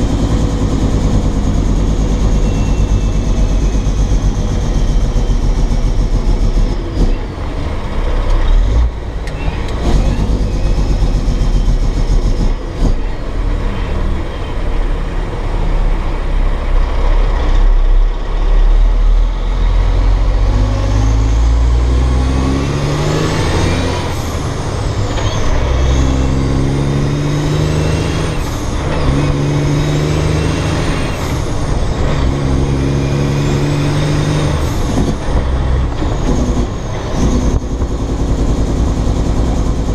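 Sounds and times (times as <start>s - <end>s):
diesel truck engine shifting gears: 0.0s - 39.9s
high whistle: 2.3s - 3.8s.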